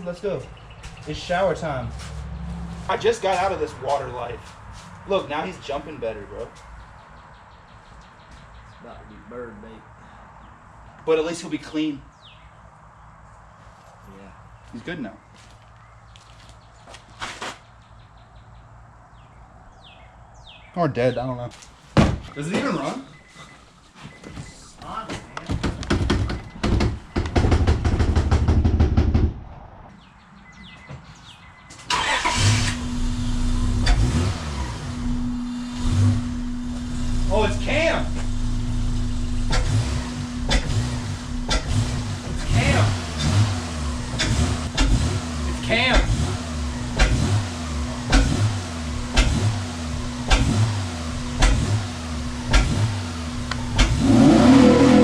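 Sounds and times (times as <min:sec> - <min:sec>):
car engine cranking on starter: 0:31.9 - 0:36.5
car engine running: 0:32.3 - 0:55.0.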